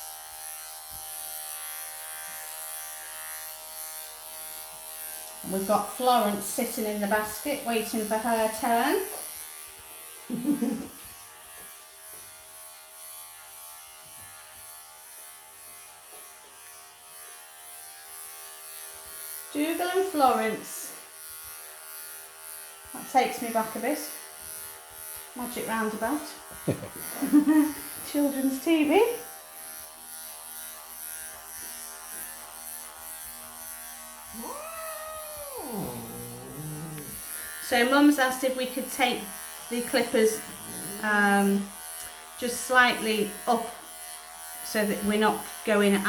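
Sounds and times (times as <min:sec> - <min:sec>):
electric clippers humming: 0:00.0 - 0:46.0
long drawn-out vocal sound: 0:34.4 - 0:37.2.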